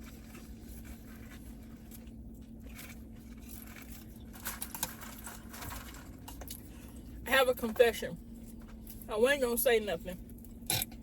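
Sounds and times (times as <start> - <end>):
rustling of food and wrappers: 0.0 - 7.2
steady low hum: 0.0 - 11.0.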